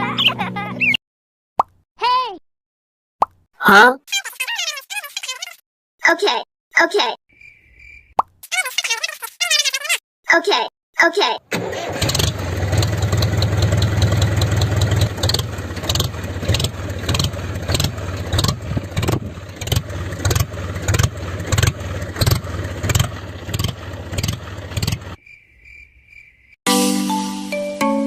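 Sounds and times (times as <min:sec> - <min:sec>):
small engine pulsing: 0:11.5 - 0:25.2.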